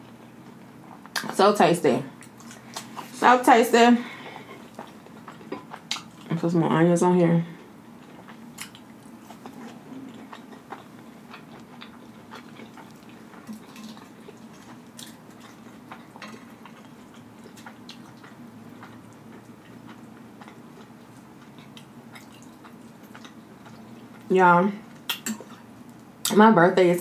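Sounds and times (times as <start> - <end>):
steady low hum: 0.0 - 27.0
chewing with wet mouth clicks: 4.3 - 6.4, 8.0 - 24.3, 24.9 - 26.4.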